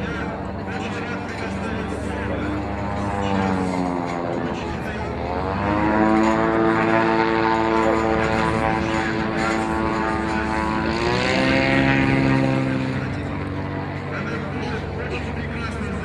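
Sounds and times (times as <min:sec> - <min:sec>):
propeller engine droning: 0:00.0 - 0:16.0.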